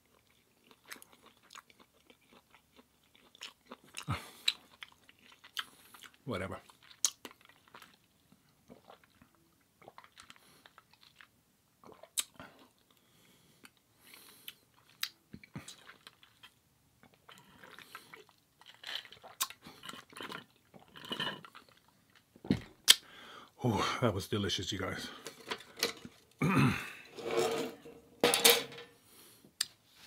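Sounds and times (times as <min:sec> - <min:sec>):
person chewing food: 0:00.0 - 0:23.2.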